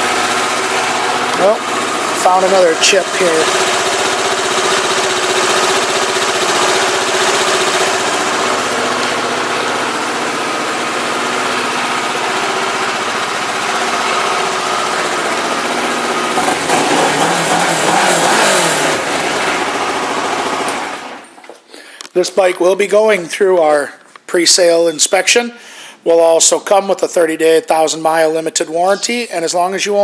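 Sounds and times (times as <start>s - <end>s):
motorcycle engine idling and revving: 0.0s - 21.2s.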